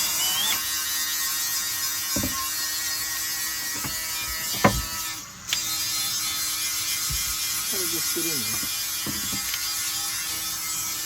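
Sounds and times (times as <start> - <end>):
high electric buzz: 0.0 - 11.0
knocks of parts being handled: 3.8 - 5.0.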